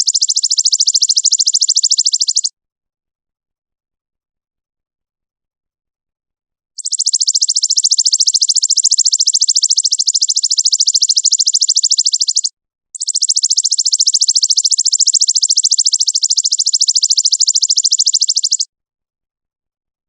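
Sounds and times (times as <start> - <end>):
high-pitched bird trilling: 0.0 - 2.5, 6.8 - 18.7.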